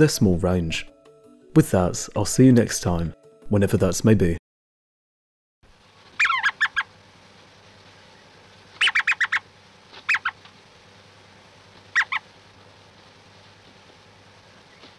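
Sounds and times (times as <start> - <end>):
faint steady hiss: 5.7 - 14.9
bird calling: 6.2 - 7.0, 8.1 - 10.5, 11.8 - 12.4, 14.5 - 14.9.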